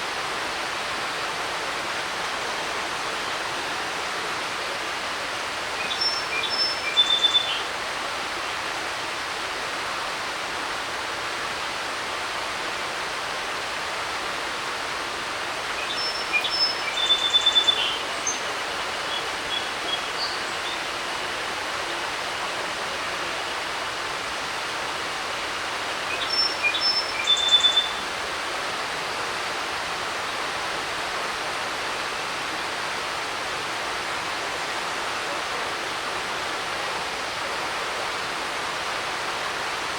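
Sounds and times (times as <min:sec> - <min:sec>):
creek water rushing: 0:00.0 - 0:39.9
songbird singing: 0:05.8 - 0:07.7, 0:15.8 - 0:21.0, 0:26.1 - 0:28.1.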